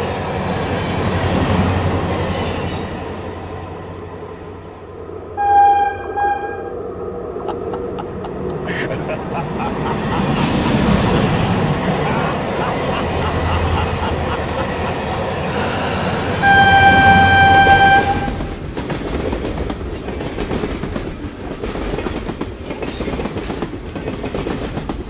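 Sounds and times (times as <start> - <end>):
freight train rumbling: 0.0 - 25.0
train whistle blast: 5.4 - 6.8, 15.6 - 18.4.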